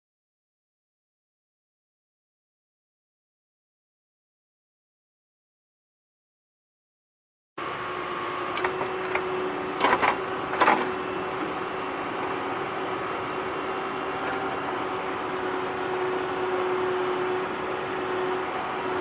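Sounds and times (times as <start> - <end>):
small motor whirring hum: 7.6 - 19.0.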